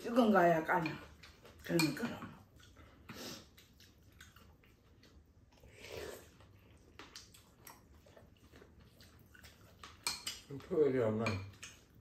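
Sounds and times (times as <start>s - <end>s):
quiet chewing and mouth sounds: 0.0s - 12.0s
chopsticks and spoon clicking bowls: 0.8s - 2.4s, 9.4s - 12.0s.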